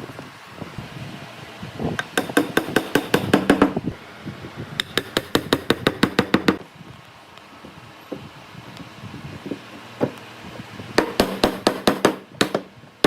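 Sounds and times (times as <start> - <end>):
hammer tapping on wood: 2.0 - 3.8, 4.8 - 6.6, 11.0 - 12.7.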